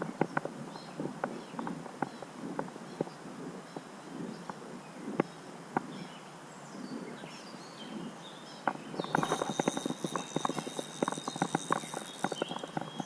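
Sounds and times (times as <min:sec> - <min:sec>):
fishing reel cranking: 0:09.1 - 0:13.0.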